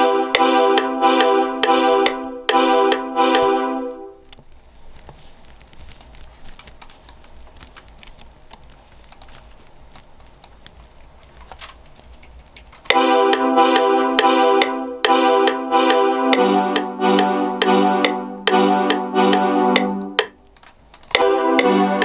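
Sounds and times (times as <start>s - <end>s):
synth chord loop: 0.0s - 4.2s, 12.9s - 20.4s, 21.1s - 22.0s
computer keyboard typing: 5.9s - 13.6s.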